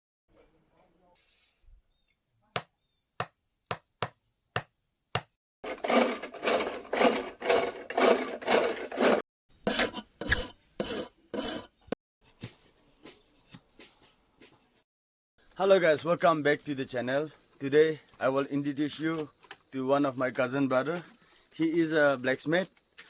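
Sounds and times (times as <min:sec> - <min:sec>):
file rasping across steel: 0:05.6 - 0:11.8.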